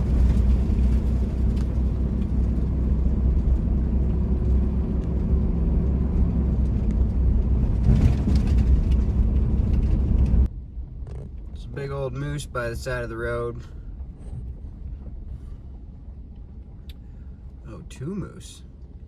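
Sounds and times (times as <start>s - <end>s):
vehicle engine and tyre rumble: 0.0s - 19.0s.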